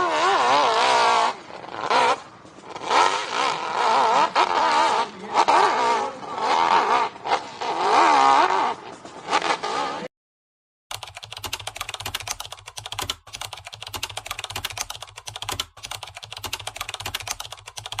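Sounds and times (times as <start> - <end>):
dirt bike engine revving: 0.0 - 10.1
fast dense clicking: 10.9 - 18.0.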